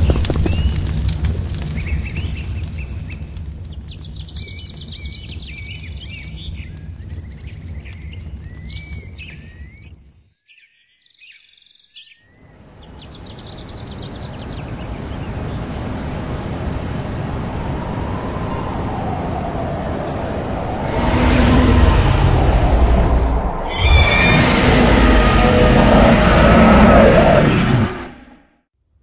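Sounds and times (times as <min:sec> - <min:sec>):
low rumble: 0:00.0 - 0:10.1, 0:14.5 - 0:28.4
birds chirping: 0:00.0 - 0:19.1, 0:20.1 - 0:28.4
broad rushing noise: 0:14.9 - 0:28.4.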